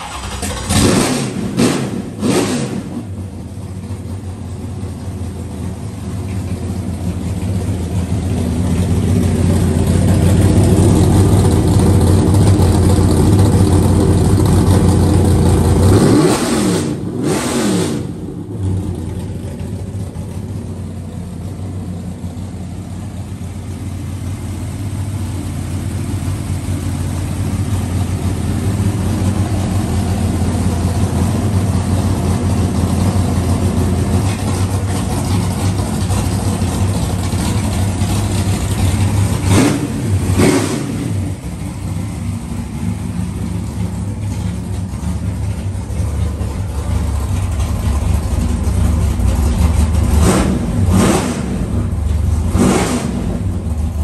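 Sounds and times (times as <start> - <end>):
race car engine revving: 0.0 - 3.3, 9.0 - 20.4, 26.6 - 54.0.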